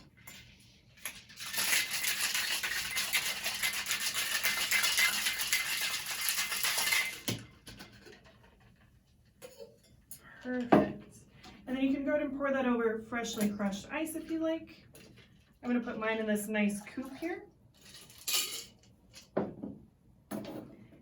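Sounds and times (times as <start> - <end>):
ice rattling in cocktail shaker: 0.2 - 8.3, 16.8 - 19.3.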